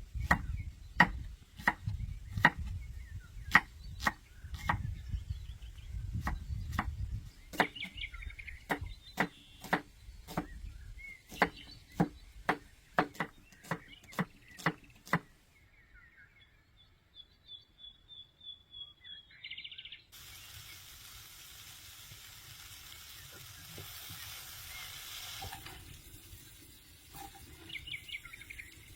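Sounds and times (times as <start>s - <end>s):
birds chirping: 0.0s - 21.0s, 23.0s - 28.9s
knife chopping on wooden board: 0.2s - 2.8s, 3.5s - 4.9s, 6.2s - 7.9s, 8.7s - 10.6s, 11.3s - 15.3s
sizzling hiss: 20.1s - 28.9s.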